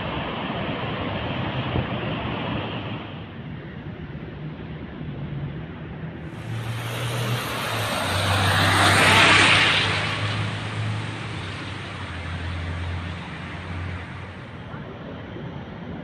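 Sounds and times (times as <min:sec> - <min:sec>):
car passing by: 0:06.2 - 0:14.8.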